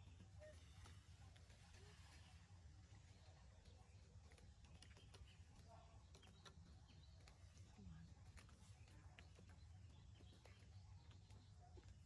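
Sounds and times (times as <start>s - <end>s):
small clicks and ticks: 4.2s - 12.0s.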